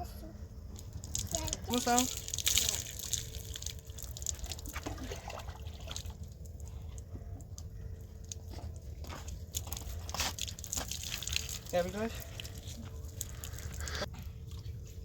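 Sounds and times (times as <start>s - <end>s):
steady low rumble: 0.0s - 15.0s
crunching and crackling: 6.1s - 14.8s.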